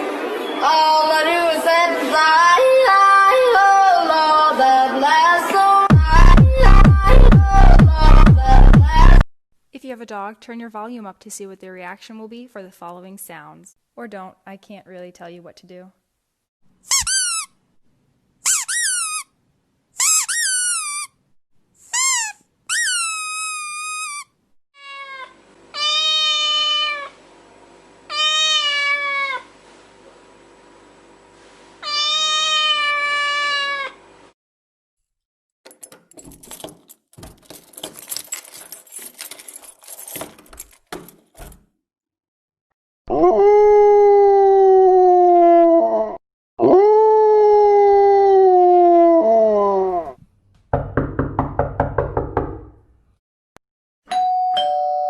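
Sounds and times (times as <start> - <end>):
cat meowing: 24.8 - 27.1, 28.1 - 29.5, 31.8 - 34.0.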